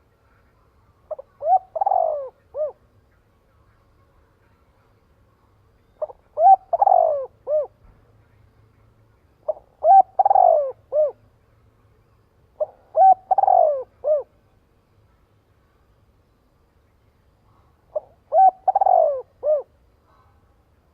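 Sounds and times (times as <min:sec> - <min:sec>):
dove cooing: 0:01.1 - 0:02.8, 0:05.9 - 0:07.8, 0:09.4 - 0:11.2, 0:12.6 - 0:14.4, 0:17.5 - 0:20.4.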